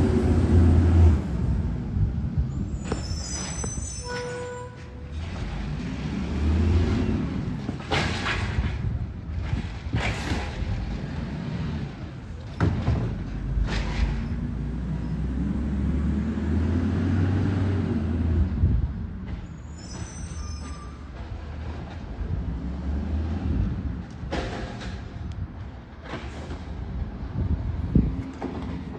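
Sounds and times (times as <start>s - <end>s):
high squeals: 2.6s - 5.0s, 19.5s - 21.1s.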